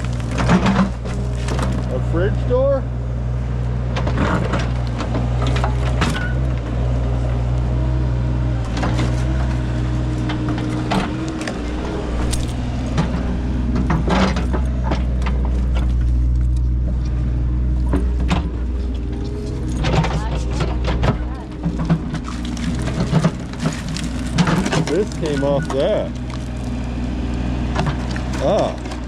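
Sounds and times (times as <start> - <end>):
clanks and scrapes of scrap metal: 0.0 - 2.1, 8.7 - 17.2, 17.8 - 27.1
engine running: 0.0 - 29.0.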